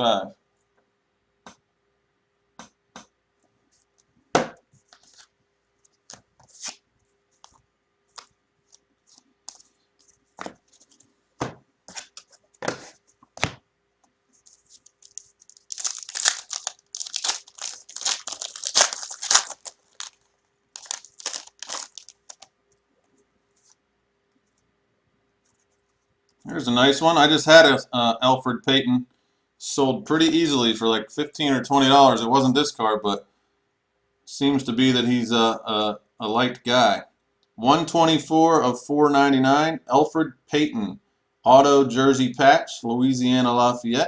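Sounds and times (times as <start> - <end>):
card pack wrapper tearing: 14.4 - 22.5.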